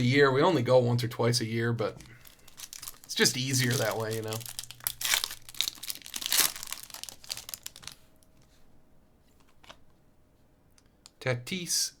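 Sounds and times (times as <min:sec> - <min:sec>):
plastic wrapper tearing and crinkling: 0:02.1 - 0:08.1.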